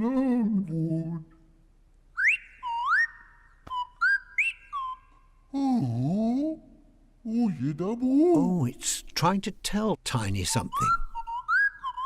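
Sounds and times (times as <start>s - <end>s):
slide whistle calls: 2.2s - 5.3s, 10.5s - 12.0s.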